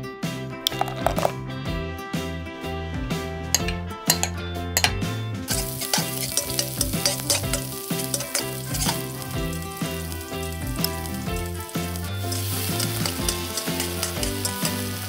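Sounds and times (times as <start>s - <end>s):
onion sizzling in oil: 5.5s - 15.0s
small spoon clicking stirring: 5.6s - 9.0s.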